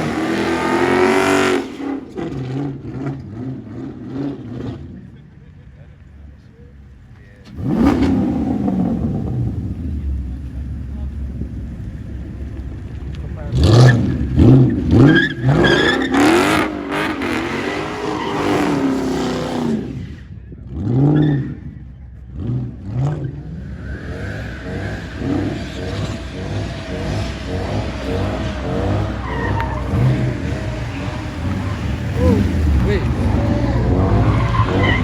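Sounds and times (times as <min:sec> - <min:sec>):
car engine revving: 0:00.0 - 0:05.2, 0:06.7 - 0:35.0
tyres squealing: 0:12.6 - 0:19.6, 0:23.5 - 0:35.0.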